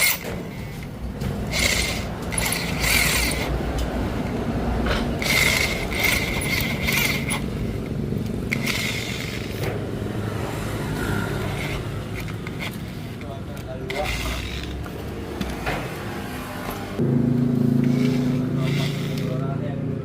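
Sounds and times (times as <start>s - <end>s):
metal tool scraping: 0.0s - 4.2s, 4.8s - 9.8s, 10.9s - 14.8s, 17.8s - 19.4s.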